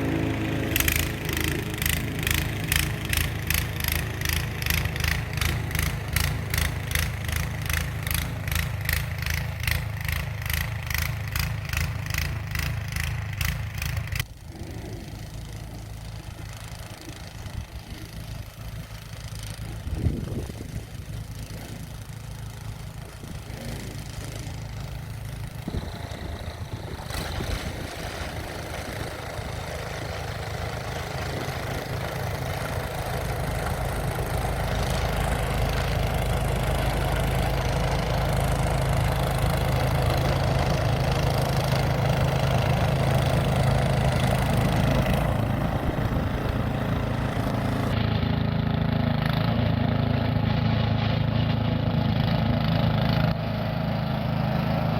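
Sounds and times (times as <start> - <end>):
snow blower engine running: 0.0 - 54.9.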